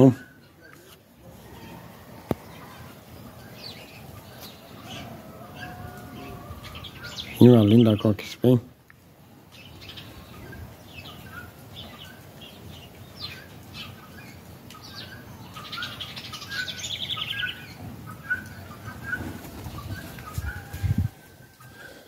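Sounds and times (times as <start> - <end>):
birds chirping and calling: 0.0 - 22.0.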